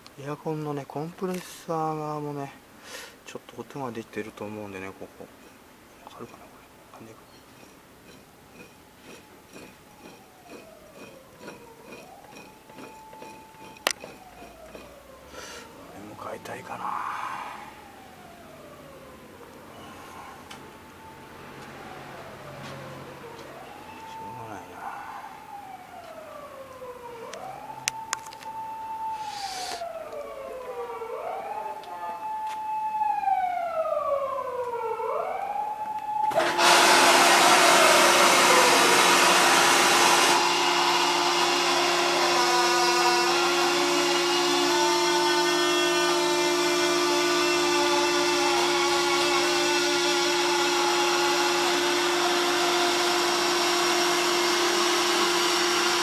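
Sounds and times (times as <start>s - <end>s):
siren wailing: 8.6s - 56.0s
rushing machine noise with hum: 36.3s - 56.0s.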